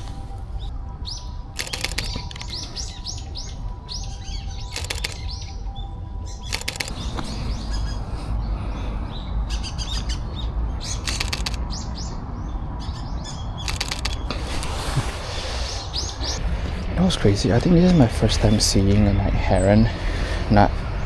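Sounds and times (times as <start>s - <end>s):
small birds chirping: 0.0s - 16.4s
camera shutter clicks: 1.6s - 2.6s, 4.7s - 5.2s, 6.5s - 7.1s, 11.0s - 11.6s, 13.7s - 14.8s.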